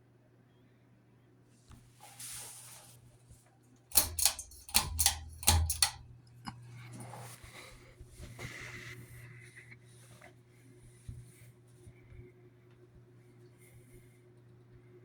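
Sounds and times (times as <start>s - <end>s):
ceiling fan motor hum: 1.8s - 15.0s
sharp clicks and knocks: 3.9s - 6.1s.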